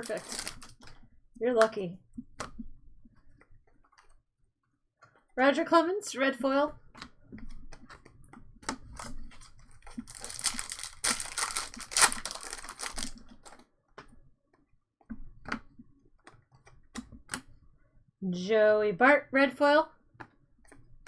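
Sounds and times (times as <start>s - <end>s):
cards being handled: 0.0s - 0.7s, 10.0s - 13.2s
wrapper crinkling and tearing: 0.0s - 0.8s, 9.9s - 13.6s.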